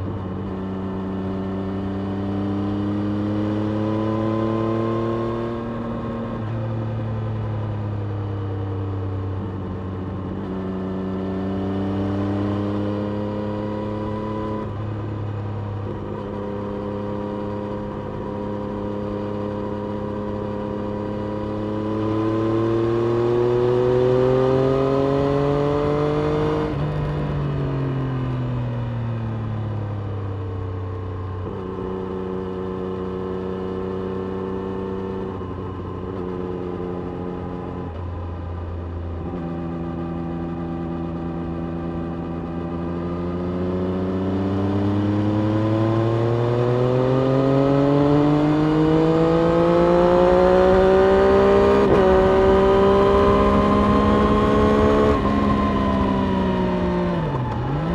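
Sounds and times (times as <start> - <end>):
motorcycle engine revving: 9.3 - 27.7, 31.3 - 57.9.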